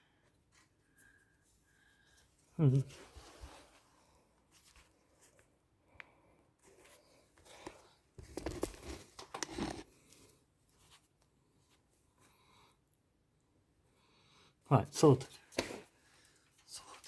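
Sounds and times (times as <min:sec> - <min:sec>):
handling rustling and scraping: 0:00.3 - 0:05.7, 0:06.6 - 0:12.2.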